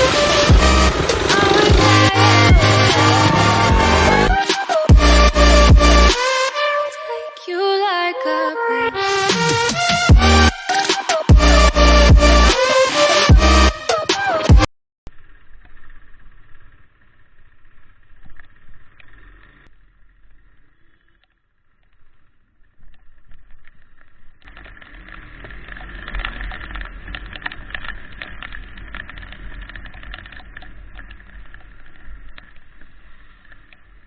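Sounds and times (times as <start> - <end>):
motorcycle noise: 0.0 - 6.4, 15.1 - 21.2, 23.0 - 34.0.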